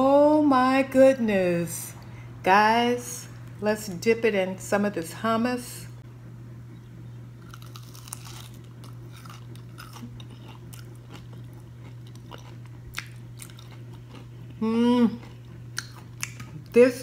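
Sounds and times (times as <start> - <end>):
low hum: 0.0 - 17.0
chewing crunchy food: 7.4 - 16.8.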